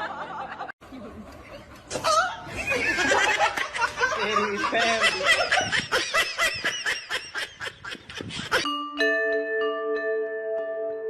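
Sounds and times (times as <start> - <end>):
people laughing: 0.0 - 8.7.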